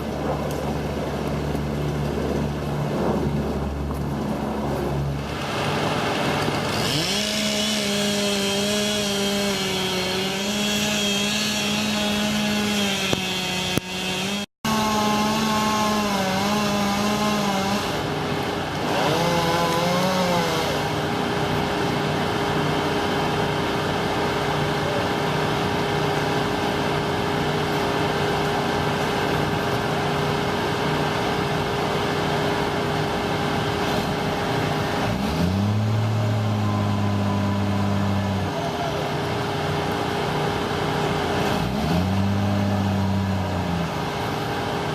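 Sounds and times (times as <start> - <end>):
chainsaw engine at high revs: 5.2 - 21.1, 39.8 - 44.2.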